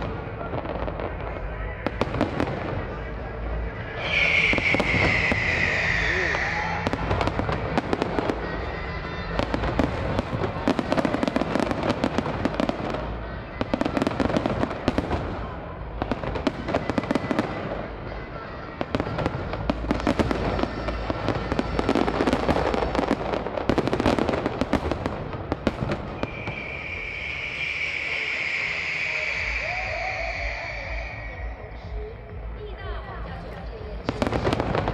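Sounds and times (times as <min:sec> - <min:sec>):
fireworks bursting and crackling: 0:00.0 - 0:32.6, 0:33.3 - 0:34.9.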